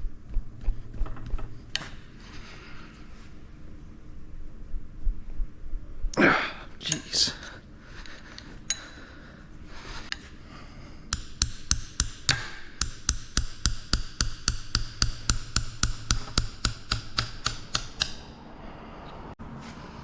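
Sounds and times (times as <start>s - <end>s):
sharp ticks of hand tool: 11.1s - 18.3s.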